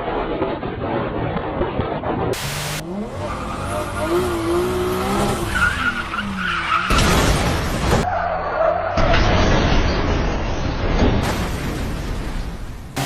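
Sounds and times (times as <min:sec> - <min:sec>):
car tyres squealing: 0:02.5 - 0:07.3, 0:07.9 - 0:09.4.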